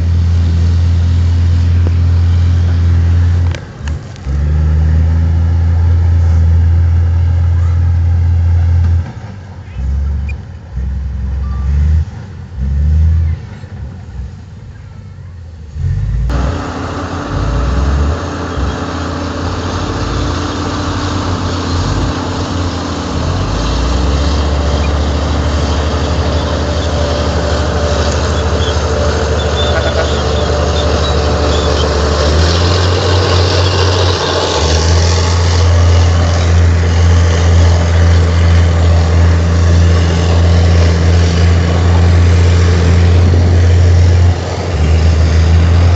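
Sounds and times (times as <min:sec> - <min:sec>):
heavy diesel machinery engine: 0:00.0 - 0:45.9.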